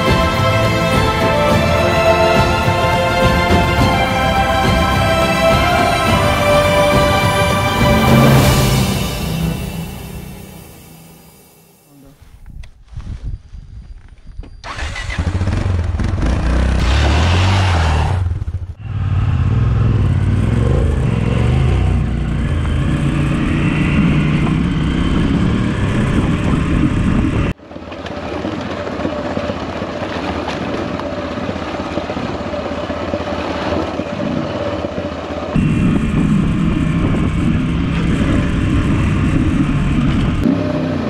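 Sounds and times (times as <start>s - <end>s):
wind noise: 12.1s - 15.3s, 18.8s - 27.6s, 28.2s - 40.5s
motorcycle engine revving: 14.6s - 27.6s, 35.5s - 41.0s
tyres on gravel road noise: 14.6s - 41.0s.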